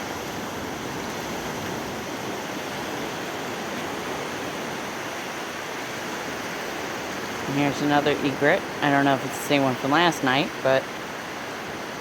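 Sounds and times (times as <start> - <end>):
ocean surf washing ashore: 0.0 - 12.0.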